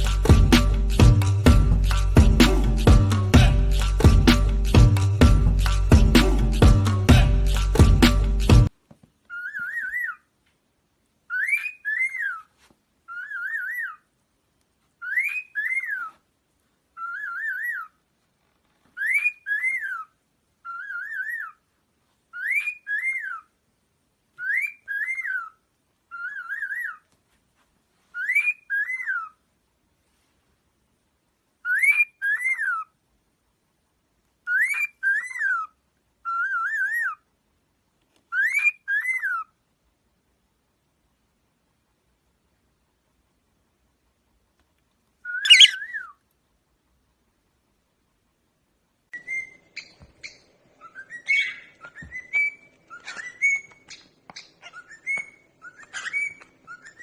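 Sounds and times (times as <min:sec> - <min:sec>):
bird whistling a phrase: 0:45.3 - 0:46.1.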